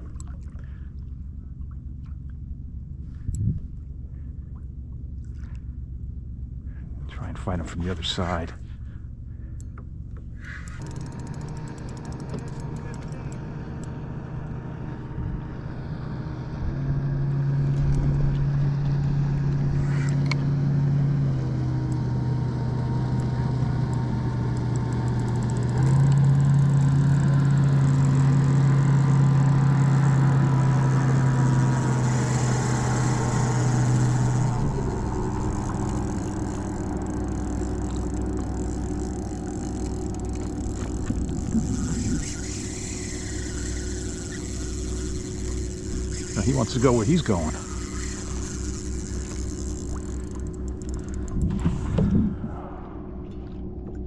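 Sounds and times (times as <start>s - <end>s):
water noise: 0.0s - 6.0s, 17.4s - 54.0s
boat motor humming: 0.0s - 54.0s
wind noise: 3.2s - 3.7s, 51.3s - 53.7s.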